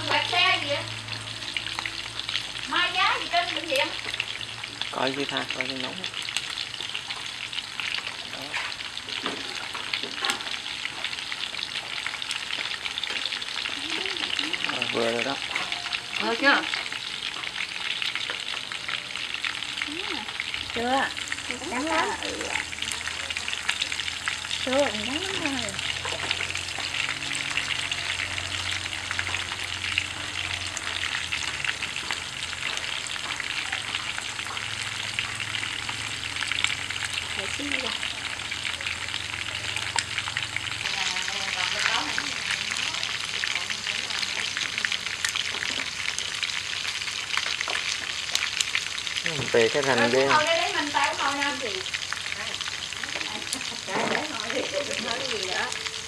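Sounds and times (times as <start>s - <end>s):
meat sizzling in hot oil: 0.0s - 56.0s
chopsticks stirring in pan: 20.3s - 34.6s.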